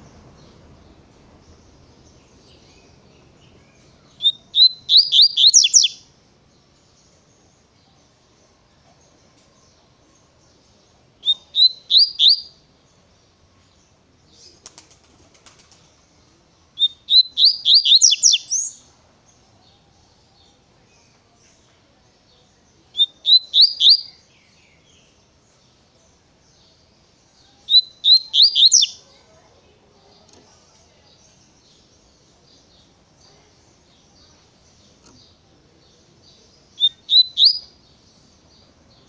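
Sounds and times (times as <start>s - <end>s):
bird singing whistled notes: 0.0s - 6.2s, 10.6s - 12.7s, 16.7s - 19.4s, 22.4s - 25.2s, 26.5s - 29.1s, 34.1s - 39.0s.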